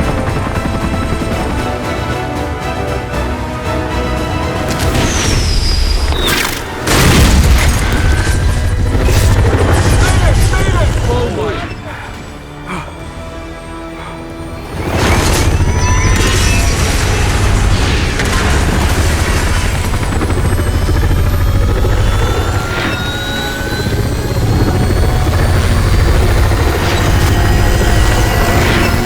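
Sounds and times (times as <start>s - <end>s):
helicopter rotors chopping: 0.0s - 29.0s
sharp booms: 4.8s - 11.2s.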